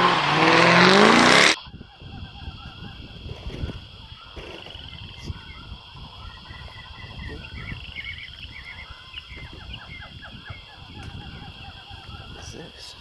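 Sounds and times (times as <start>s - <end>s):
birds chirping and trilling: 0.8s - 13.0s.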